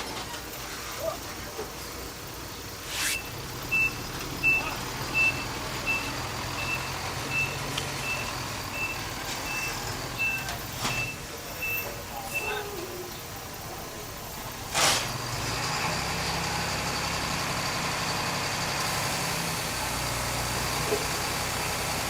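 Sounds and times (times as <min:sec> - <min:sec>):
diesel engine running low: 0:00.0 - 0:22.0
short bursts of hiss: 0:02.8 - 0:03.4
reversing alarm beeping: 0:03.1 - 0:12.6.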